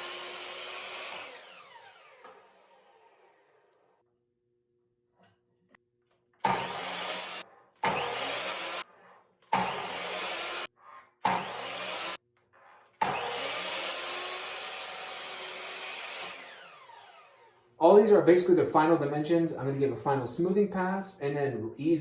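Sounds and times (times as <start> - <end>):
miter saw cutting wood: 0.0 - 4.0, 6.4 - 8.9, 9.5 - 12.2, 13.0 - 17.8.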